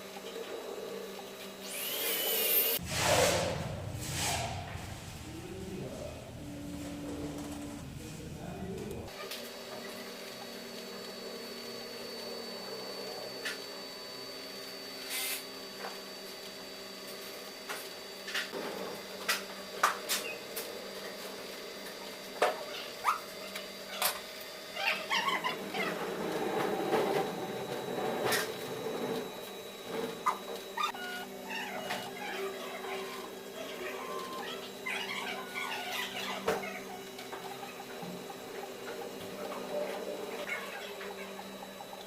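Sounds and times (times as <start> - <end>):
printer motor hum: 4.8 - 42.0.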